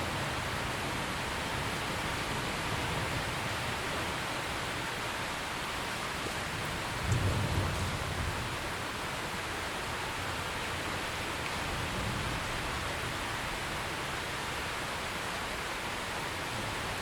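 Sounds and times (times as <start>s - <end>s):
steady rain: 0.0s - 17.0s
distant thunder rumble: 7.0s - 8.6s.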